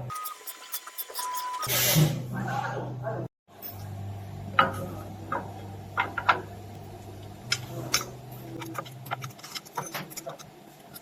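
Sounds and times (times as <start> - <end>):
low machine hum: 2.8 - 11.0.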